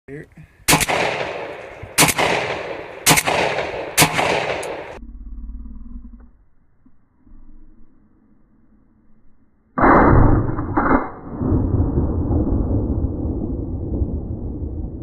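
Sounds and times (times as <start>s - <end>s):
shotgun shots echoing: 0.7s - 5.0s.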